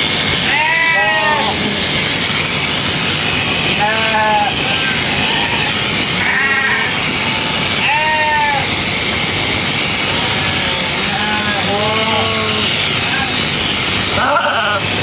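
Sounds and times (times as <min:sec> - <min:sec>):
steady loud background noise: 0:00.0 - 0:15.0
sheep bleating: 0:00.4 - 0:02.0, 0:03.6 - 0:09.0, 0:10.0 - 0:13.4, 0:14.1 - 0:15.0.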